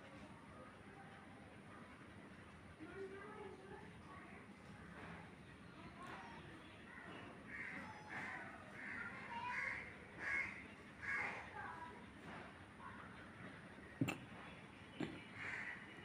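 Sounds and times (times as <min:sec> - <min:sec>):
crow cawing: 0:07.5 - 0:11.4, 0:15.4 - 0:15.9.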